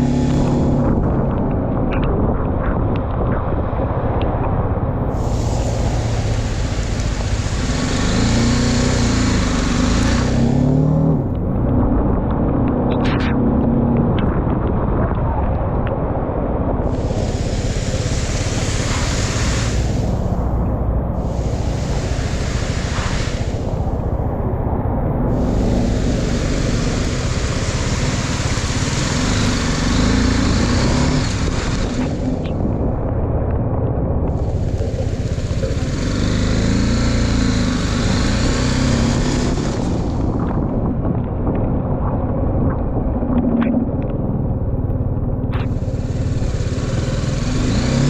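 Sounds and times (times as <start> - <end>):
hiss of rain and road spray: 0.0 - 0.9, 5.1 - 11.4, 16.8 - 32.6, 34.3 - 40.5, 45.6 - 48.0
motorcycle engine running: 0.0 - 1.9, 4.8 - 14.4, 16.8 - 33.3, 34.2 - 40.9, 43.9 - 48.0
wind rumble on microphone: 0.0 - 48.0.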